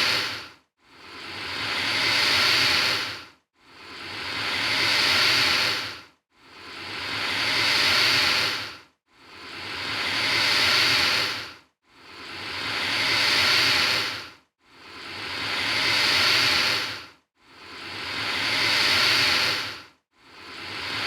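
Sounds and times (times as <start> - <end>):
alligator hissing: 0.0 - 0.4, 1.2 - 3.2, 3.9 - 6.0, 7.1 - 8.7, 9.4 - 11.5, 12.1 - 14.2, 14.9 - 17.0, 17.7 - 19.8.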